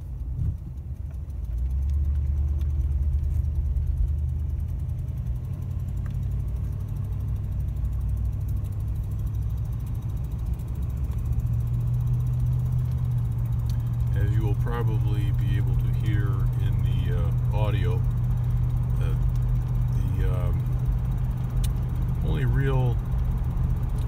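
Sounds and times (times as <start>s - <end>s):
car engine rumble: 0.0s - 24.0s
exhaust manifold ticking: 0.0s - 24.0s.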